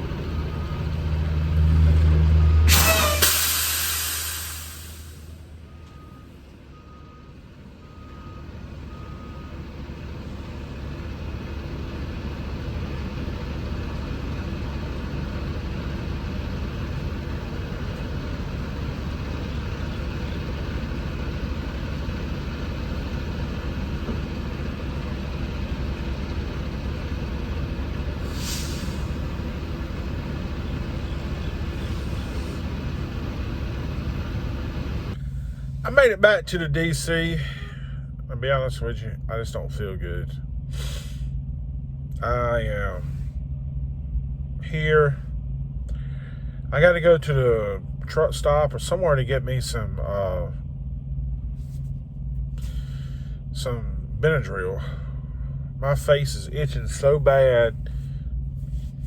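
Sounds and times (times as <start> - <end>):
truck diesel engine running: 0.0 - 59.0
air hiss: 2.7 - 5.2, 28.2 - 29.2.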